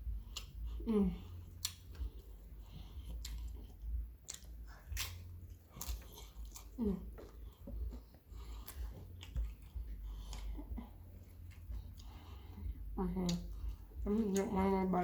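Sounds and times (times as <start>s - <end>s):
chewing and crunching food: 0.0s - 15.0s
person humming: 0.8s - 1.4s, 12.9s - 15.0s.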